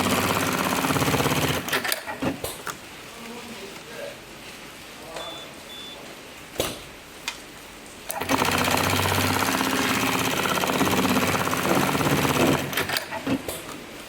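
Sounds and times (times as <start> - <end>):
sewing machine stitching: 0.0 - 2.4, 8.1 - 13.6.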